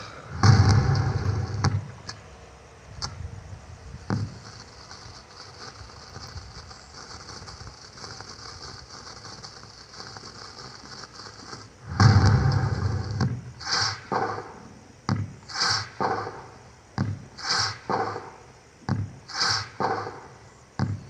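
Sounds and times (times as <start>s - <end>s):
firecracker bang: 0.0s - 2.0s, 11.8s - 21.0s
loud firecracker burst: 0.0s - 2.1s, 4.0s - 21.0s.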